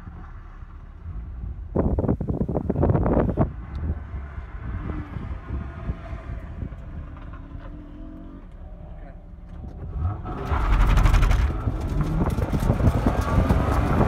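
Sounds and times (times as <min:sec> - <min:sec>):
car engine revving inside cabin: 0:00.0 - 0:14.0.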